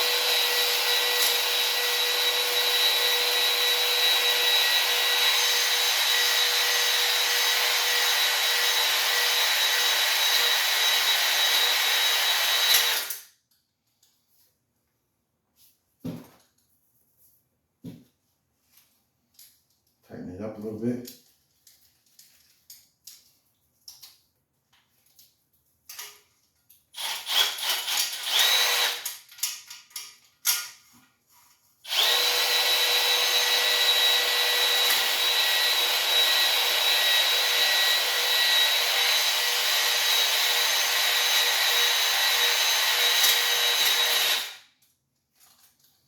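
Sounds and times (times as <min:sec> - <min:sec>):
electric drill whining: 0:00.0 - 0:13.2, 0:27.0 - 0:29.2, 0:31.9 - 0:44.7.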